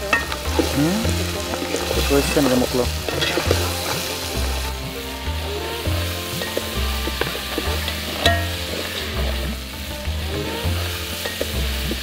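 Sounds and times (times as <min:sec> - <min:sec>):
background music with bass: 0:00.0 - 0:12.0
crab frying with sizzle: 0:00.0 - 0:12.0.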